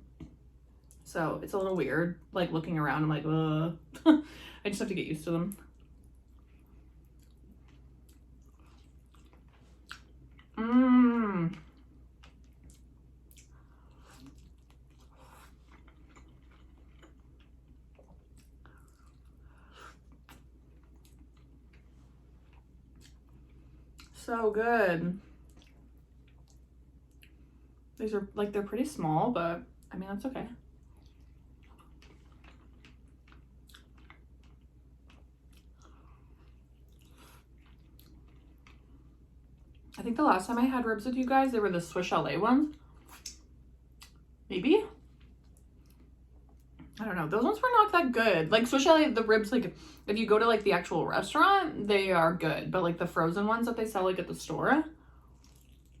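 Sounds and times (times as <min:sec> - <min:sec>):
person chewing: 0:05.7 - 0:24.2, 0:25.4 - 0:27.4, 0:30.8 - 0:40.0, 0:55.3 - 0:56.0.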